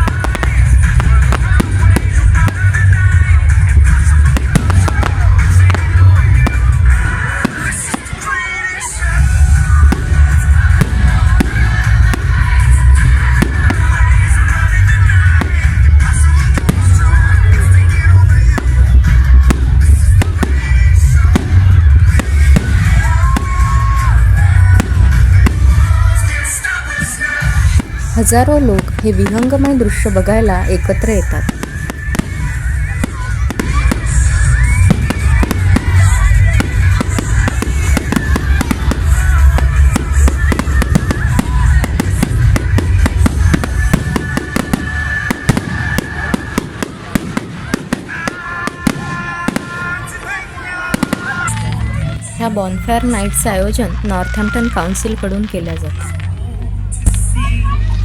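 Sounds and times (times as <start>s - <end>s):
deep rumble: 0.0s - 7.5s, 9.1s - 26.4s, 27.4s - 43.9s
fireworks bangs: 0.0s - 57.6s
music playing: 0.0s - 58.0s
deep low rumble: 55.9s - 58.0s.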